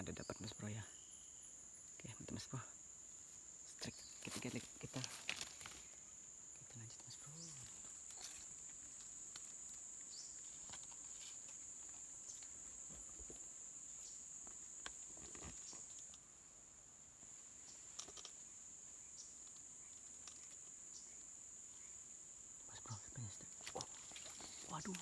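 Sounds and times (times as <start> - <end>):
high-pitched insect chorus: 0.0 - 25.0
light clicks and rustles: 3.9 - 5.9, 6.9 - 13.5, 17.6 - 18.6, 19.2 - 20.8, 23.4 - 25.0.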